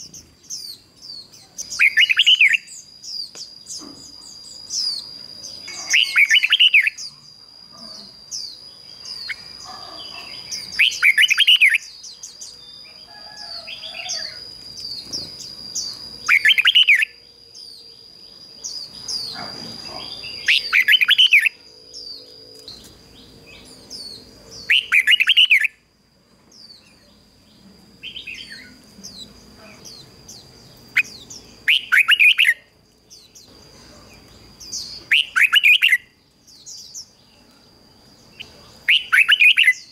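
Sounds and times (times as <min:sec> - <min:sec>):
bird singing warbled phrases: 0:00.0 - 0:25.9, 0:26.6 - 0:39.9
thin high tone with chirps: 0:00.0 - 0:25.9.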